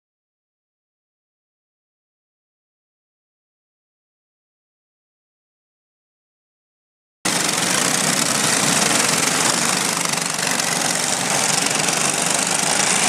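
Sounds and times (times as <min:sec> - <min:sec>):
go-kart engine running: 0:07.3 - 0:13.0.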